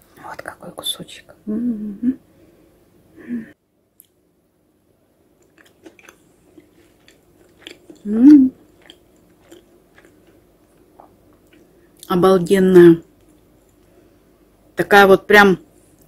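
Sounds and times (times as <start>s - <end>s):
person humming briefly: 1.5s - 2.2s, 8.1s - 8.5s
person chewing: 5.4s - 12.1s.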